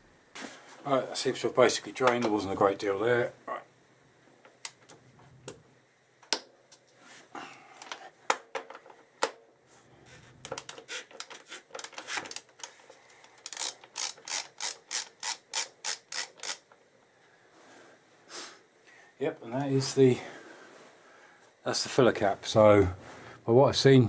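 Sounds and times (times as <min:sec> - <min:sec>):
socket ratchet clicking: 0:10.5 - 0:16.8.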